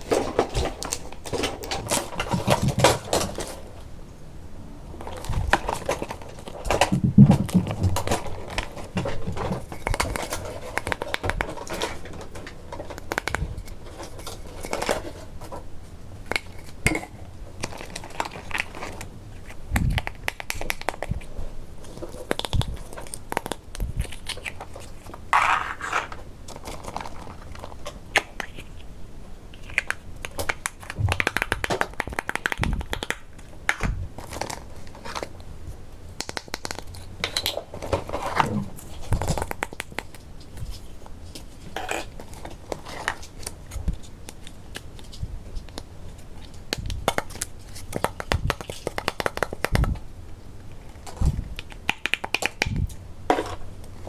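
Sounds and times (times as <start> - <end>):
packaging crinkling: 17.6 - 28.9, 29.5 - 35.4.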